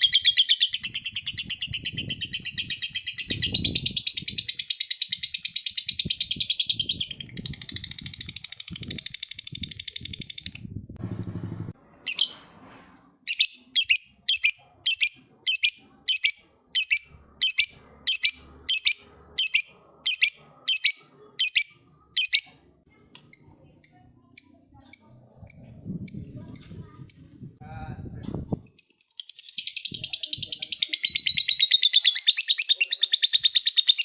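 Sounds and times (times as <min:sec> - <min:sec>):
lovebird chattering calls: 0:13.3 - 0:22.6.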